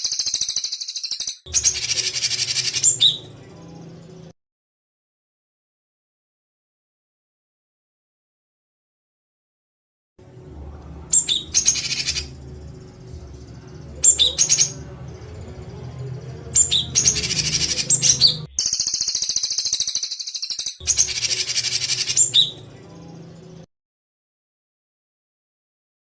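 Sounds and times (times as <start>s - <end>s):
songbird chattering: 0.0s - 3.3s, 11.1s - 13.0s, 13.6s - 22.6s
low hum: 10.2s - 18.6s.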